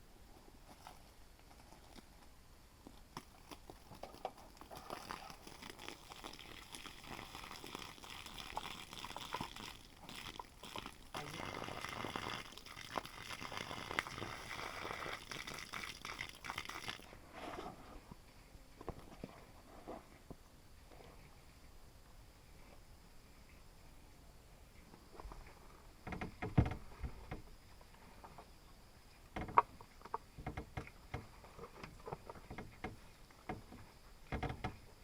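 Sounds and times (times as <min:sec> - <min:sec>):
rustling and crunching: 0:00.4 - 0:17.7.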